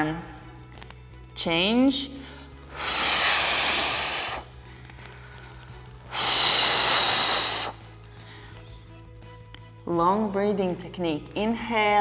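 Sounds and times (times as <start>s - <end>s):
forceful hissing breaths: 2.6s - 4.7s, 6.1s - 7.9s.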